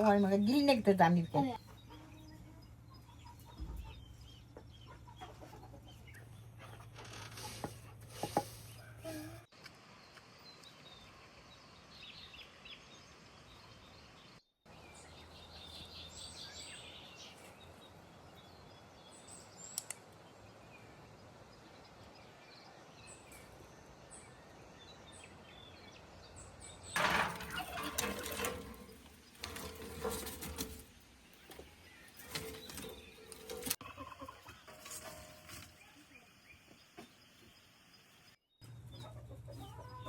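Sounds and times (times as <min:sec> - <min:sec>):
rustling: 0:27.0 - 0:33.8.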